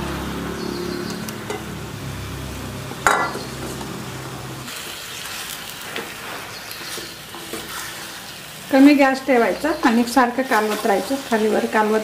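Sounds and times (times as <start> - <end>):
chicken sizzling in oil: 0.6 - 12.0
wooden spatula stirring: 5.3 - 8.3.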